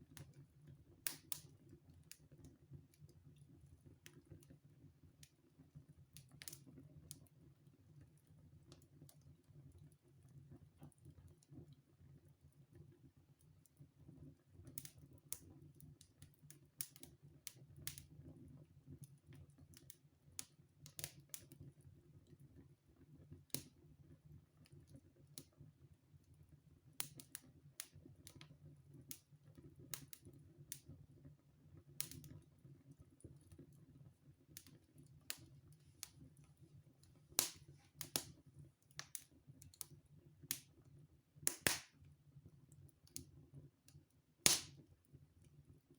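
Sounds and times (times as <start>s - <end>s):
wood fire crackling: 0.0s - 5.4s, 26.9s - 30.9s, 31.8s - 42.2s, 42.8s - 45.2s.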